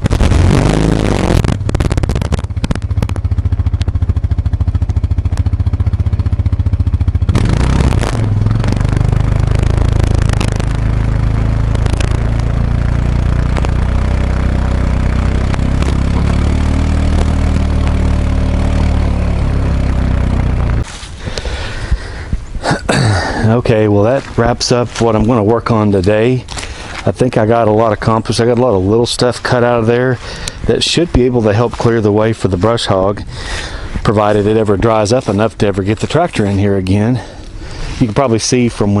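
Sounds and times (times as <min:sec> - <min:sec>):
quad bike engine running: 0:00.0 - 0:21.9.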